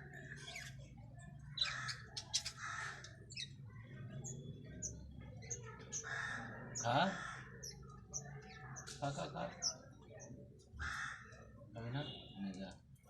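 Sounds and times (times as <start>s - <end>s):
bird harsh scratchy calls: 1.5s - 3.6s, 5.4s - 7.8s.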